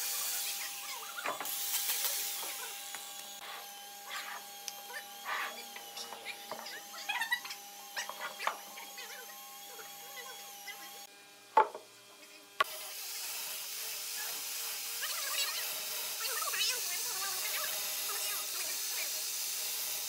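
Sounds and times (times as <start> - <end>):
loud wooden knock: 11.6 - 11.8
wooden knocks and scrapes: 11.6 - 11.8.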